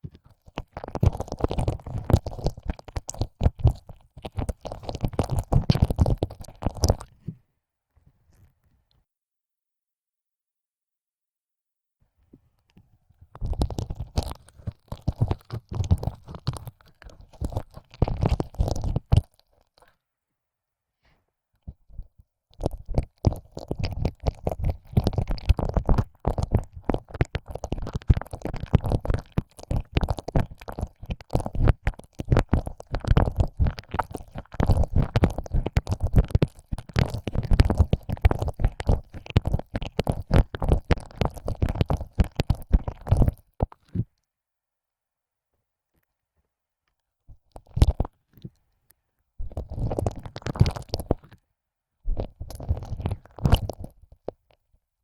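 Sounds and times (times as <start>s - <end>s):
wet tongue licking ear: 0.4s - 7.1s, 13.4s - 19.9s, 22.6s - 43.8s, 49.4s - 51.4s, 52.1s - 54.2s.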